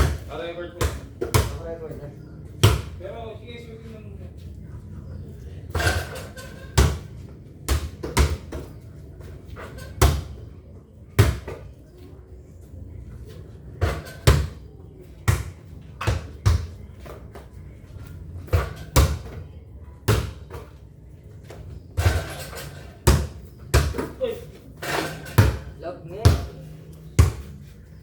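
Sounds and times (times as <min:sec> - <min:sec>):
basketball thudding: 0:00.0 - 0:01.7, 0:02.6 - 0:03.0, 0:07.7 - 0:08.7, 0:22.0 - 0:24.2, 0:24.8 - 0:26.6, 0:27.2 - 0:27.5.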